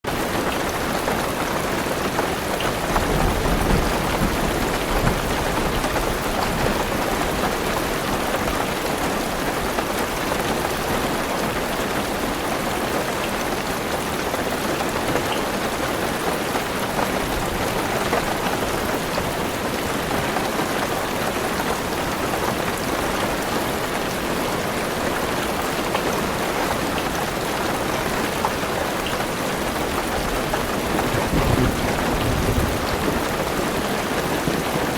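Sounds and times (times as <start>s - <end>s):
heavy rain on car roof: 0.1s - 34.9s
low rumble of thunder: 2.7s - 8.3s, 30.2s - 34.9s.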